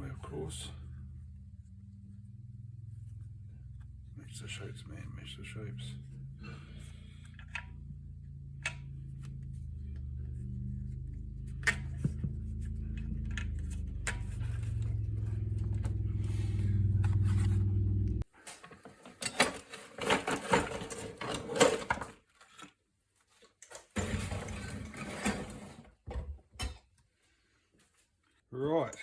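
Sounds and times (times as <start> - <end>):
motor humming: 9.4 - 18.2
small metal parts clattering: 19.0 - 22.6.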